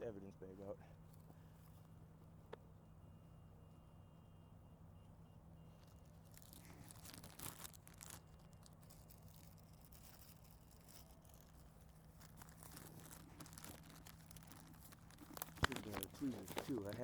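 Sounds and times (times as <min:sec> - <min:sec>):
plastic bag crinkling: 0:05.8 - 0:17.0.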